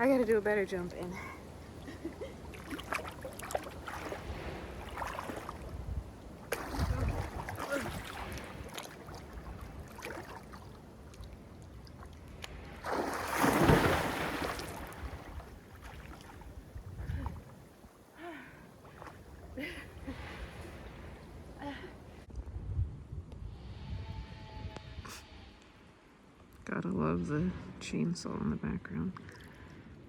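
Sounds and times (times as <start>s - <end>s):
water splashing: 0.0s - 22.3s
person jumping into water: 2.4s - 11.4s, 12.0s - 17.8s.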